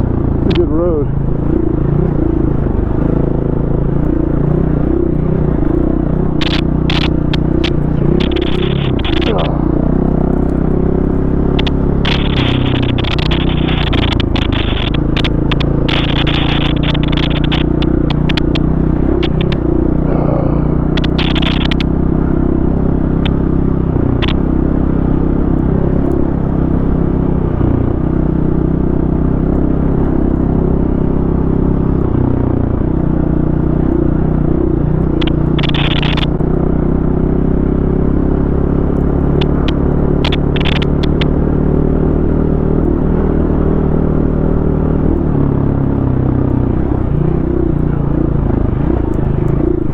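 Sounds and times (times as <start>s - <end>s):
dirt bike engine running: 0.0s - 49.9s
clicks and clatter of stones: 6.3s - 9.5s, 11.4s - 19.8s, 20.8s - 21.9s, 24.1s - 24.4s, 35.1s - 36.6s, 39.0s - 41.4s.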